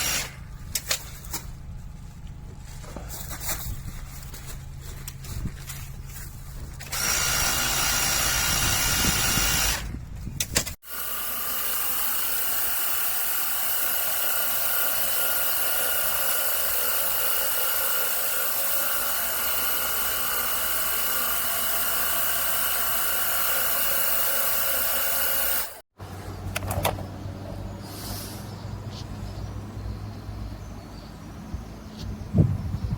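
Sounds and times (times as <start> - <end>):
pressure washer motor whine: 10.9 - 25.8.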